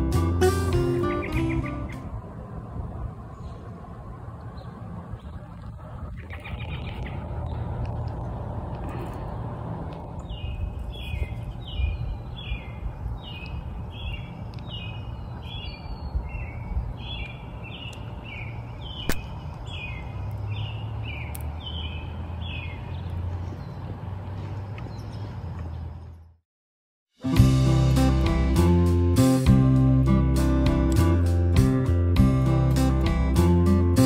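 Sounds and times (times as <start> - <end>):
low outdoor rumble: 0.0 - 26.4
songbird chirping: 0.5 - 2.2, 9.9 - 26.4
sharp click: 19.0 - 19.3.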